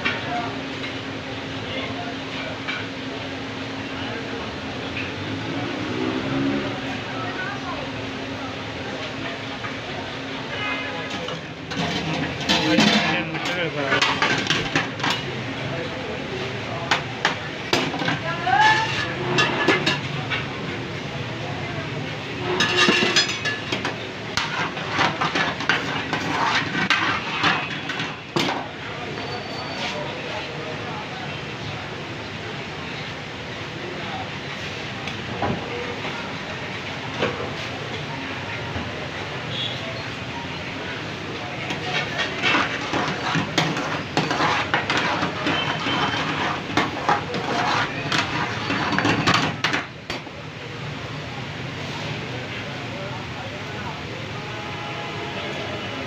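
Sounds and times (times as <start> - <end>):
steady background noise: 0.0 - 56.0
utensils and dishes clattering: 11.0 - 15.4, 16.9 - 20.6, 22.4 - 29.4, 41.6 - 50.2.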